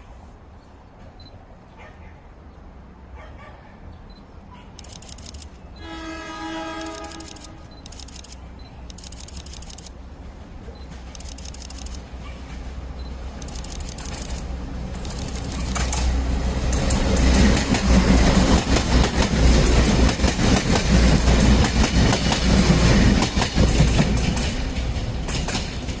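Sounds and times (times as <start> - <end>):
train wheels clicking over rail joints: 4.8 - 5.6, 6.6 - 26.0.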